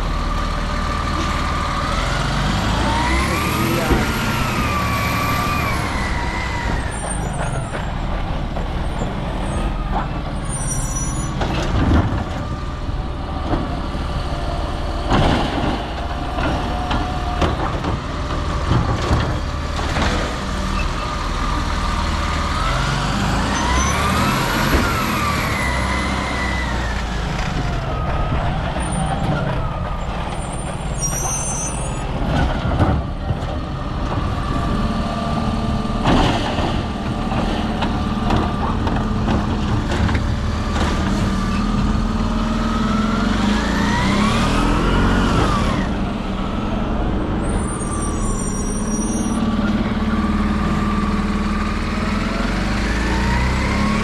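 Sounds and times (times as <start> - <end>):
truck engine revving: 0.0 - 54.0
cart knocking and clattering: 3.2 - 20.6, 27.3 - 42.1.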